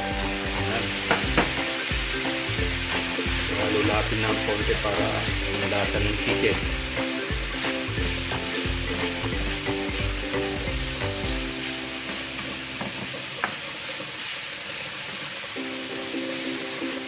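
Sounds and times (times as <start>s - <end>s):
food sizzling in a hot pan: 0.0s - 17.0s
spatula knocking and scraping pan: 1.0s - 2.1s, 12.0s - 14.1s.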